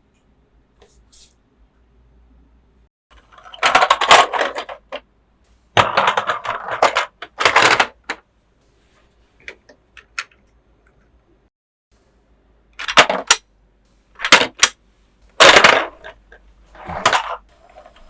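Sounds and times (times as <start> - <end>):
plastic toy parts rattling: 3.2 - 5.0, 5.8 - 8.2, 12.8 - 13.4, 14.2 - 14.8, 15.4 - 16.2, 16.8 - 17.8.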